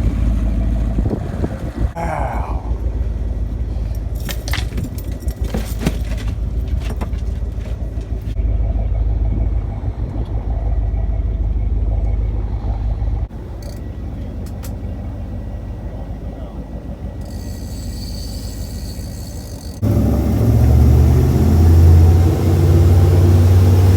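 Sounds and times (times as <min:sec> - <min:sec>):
wind on microphone: 0:00.0 - 0:02.8
motorboat engine rumble: 0:00.0 - 0:23.9
clattering knocks: 0:04.1 - 0:08.4.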